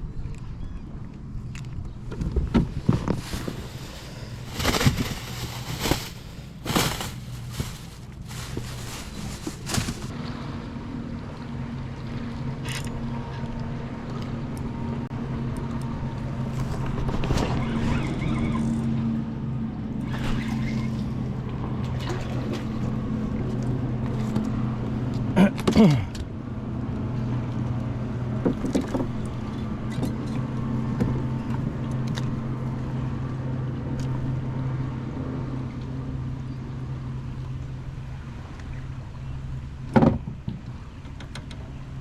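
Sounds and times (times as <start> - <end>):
motor humming on water: 0.0 - 42.0
splashes and knocks: 2.2 - 10.2.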